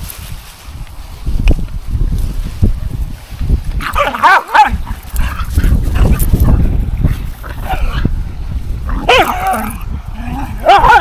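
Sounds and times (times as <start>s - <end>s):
wind noise on microphone: 0.0s - 11.0s
dog barking and yipping: 3.8s - 6.6s, 8.9s - 9.8s, 10.6s - 11.0s.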